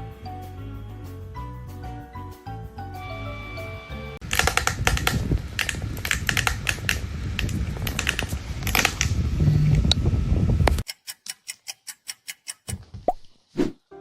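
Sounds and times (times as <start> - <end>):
rapid uneven clicking and tapping: 4.2 - 9.1
sharp clicks: 4.2 - 9.2
rumbling noise: 4.2 - 10.8.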